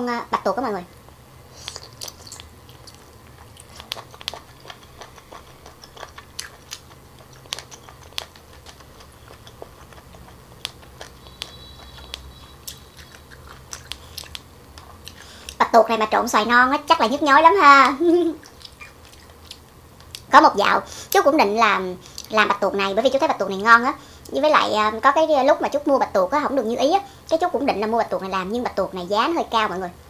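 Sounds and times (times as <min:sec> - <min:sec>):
low steady hum: 0:00.0 - 0:30.0
wet chewing clicks and smacks: 0:01.6 - 0:15.6, 0:17.8 - 0:20.3.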